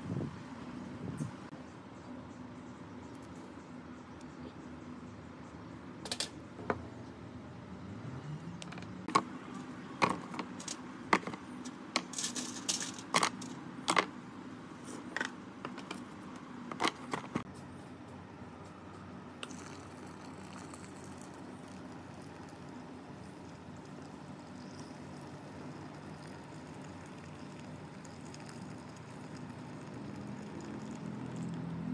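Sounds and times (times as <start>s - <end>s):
clinks of small metal parts: 12.0s - 14.0s.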